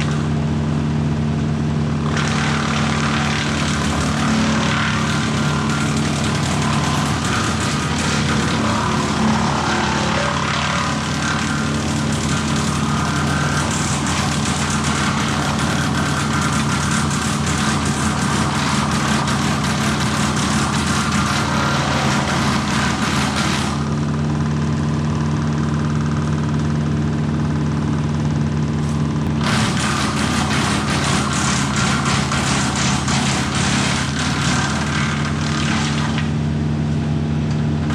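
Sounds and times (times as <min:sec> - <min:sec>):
engine running steadily: 0:00.0 - 0:37.9
rough rushing noise: 0:02.1 - 0:24.0.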